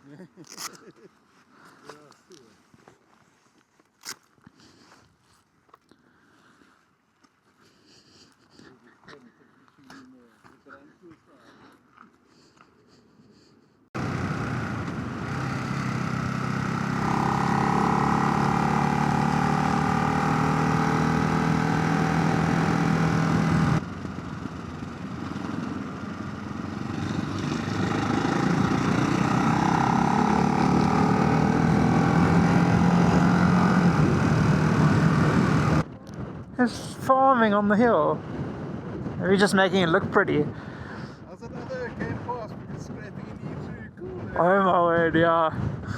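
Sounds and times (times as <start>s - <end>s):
motorcycle engine accelerating: 14.0s - 35.9s
rushing wind noise: 37.9s - 45.9s.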